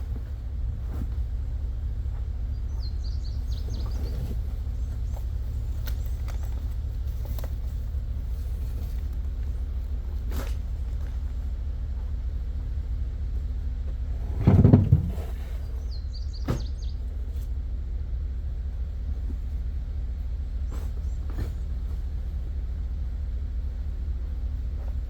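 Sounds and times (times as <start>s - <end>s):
steady low rumble: 0.0s - 25.0s
trash knocking in dumpster: 14.1s - 15.8s, 16.4s - 17.0s
heavy thud with rattle: 14.2s - 15.7s, 16.3s - 17.0s.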